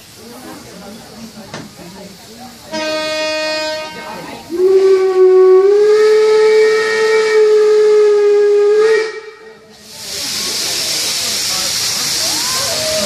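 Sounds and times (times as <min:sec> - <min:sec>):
steam locomotive whistle: 0:02.7 - 0:09.9.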